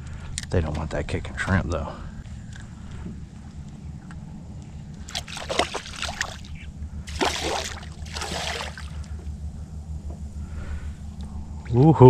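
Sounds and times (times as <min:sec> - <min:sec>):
water splashing: 0:05.0 - 0:09.1.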